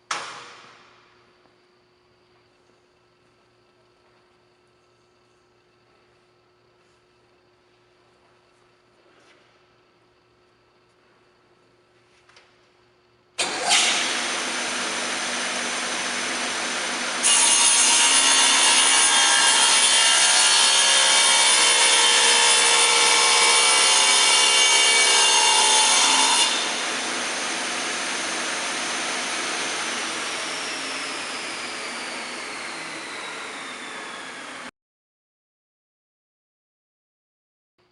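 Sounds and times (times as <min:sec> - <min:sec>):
saw blade whining cutting: 0:13.4 - 0:34.7
table saw running: 0:13.4 - 0:34.7.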